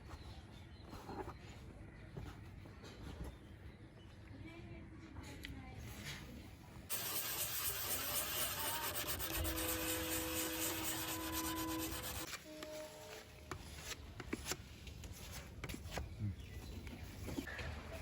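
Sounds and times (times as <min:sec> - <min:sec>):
sanding rasp on plastic: 0:06.9 - 0:12.3.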